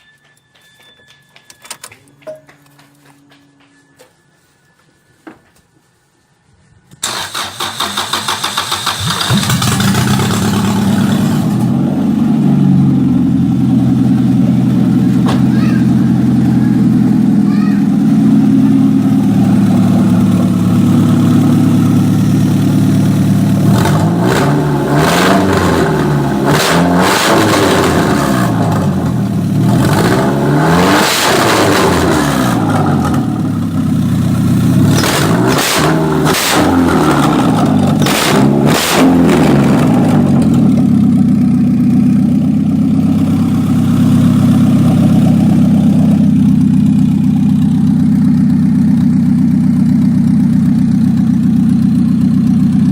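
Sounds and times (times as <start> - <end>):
car engine idling: 7.0 - 26.5, 32.2 - 38.6, 39.4 - 52.9
car engine revving: 7.0 - 52.8.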